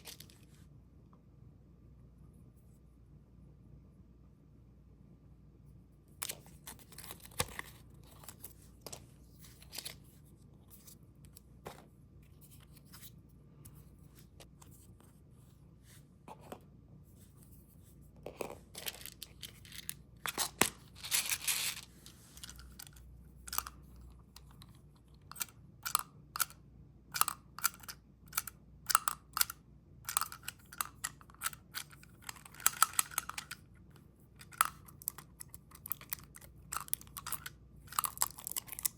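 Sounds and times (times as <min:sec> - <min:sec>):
candy wrapper crinkling: 0:34.4 - 0:38.9.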